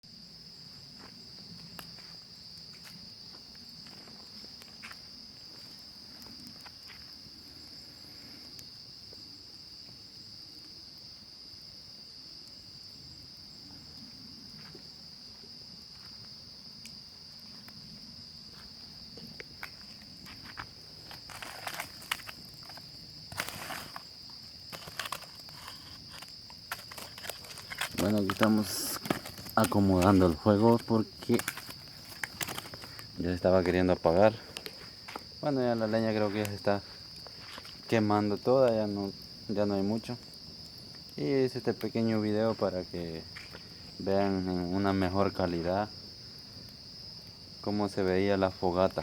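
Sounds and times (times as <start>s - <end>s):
crickets chirring: 0.0s - 49.0s
campfire crackling: 0.1s - 49.0s
rustling: 19.6s - 33.2s.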